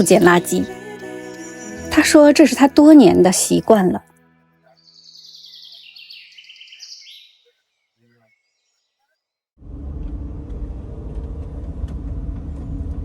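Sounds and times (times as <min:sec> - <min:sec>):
songbird chirping: 0:00.0 - 0:09.4
loud steady low rumble: 0:09.6 - 0:13.0.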